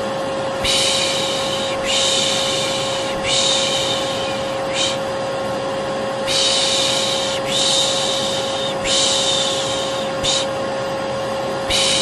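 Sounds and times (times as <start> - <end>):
vacuum cleaner running: 0.0 - 12.0
person shushing: 0.6 - 5.0, 6.3 - 10.6, 11.7 - 12.0.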